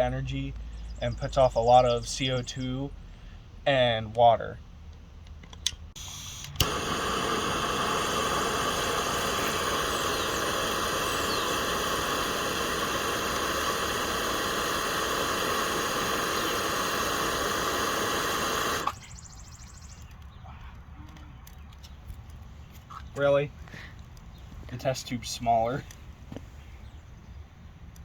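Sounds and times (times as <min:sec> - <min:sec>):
candy burning with hissing screech: 0:06.0 - 0:19.1.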